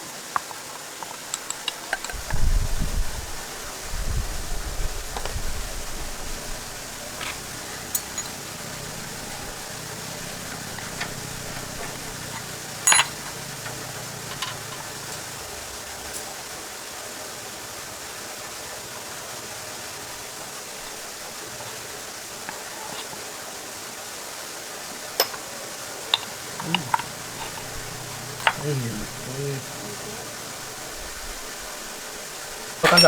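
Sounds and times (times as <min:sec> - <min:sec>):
steady hiss: 0:00.0 - 0:33.0
metal clang ringing: 0:07.2 - 0:15.2, 0:25.2 - 0:25.4
metallic tool clinks: 0:07.8 - 0:09.5, 0:10.4 - 0:14.9, 0:25.2 - 0:25.4.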